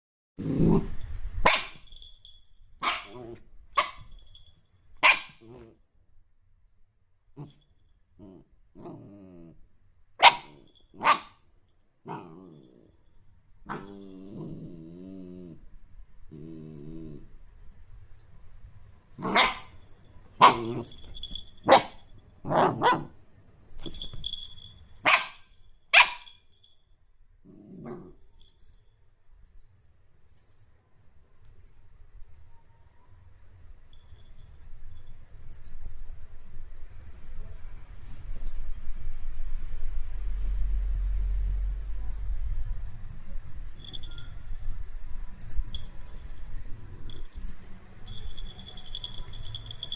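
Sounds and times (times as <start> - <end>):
dog growling: 0.4 - 1.0, 8.2 - 9.6, 12.1 - 13.0, 13.7 - 15.7, 16.3 - 17.4, 27.4 - 28.2
dog barking: 1.4 - 1.8, 2.8 - 4.1, 5.0 - 5.7, 10.2 - 11.4, 19.2 - 19.8, 20.4 - 20.9, 21.6 - 23.2, 25.0 - 26.4.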